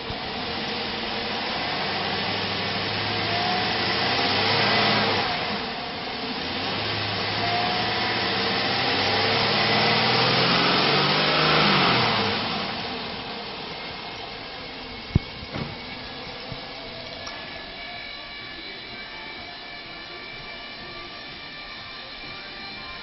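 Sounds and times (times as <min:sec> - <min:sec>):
engine revving: 0:00.0 - 0:17.9.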